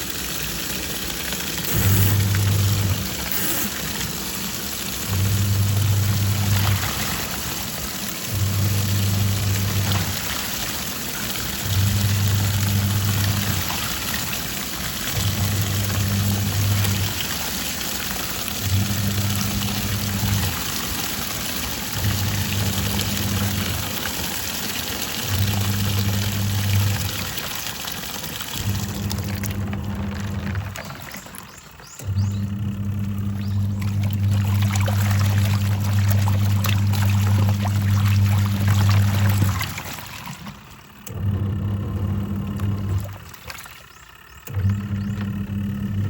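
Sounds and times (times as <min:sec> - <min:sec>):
washing machine motor humming: 0:00.0 - 0:46.0
water sloshing and churning: 0:00.0 - 0:46.0.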